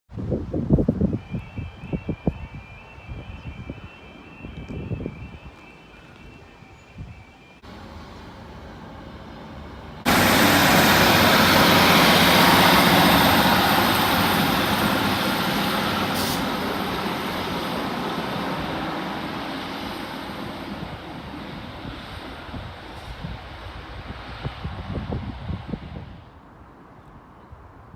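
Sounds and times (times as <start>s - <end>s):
diesel train passing roar: 1.0s - 27.9s.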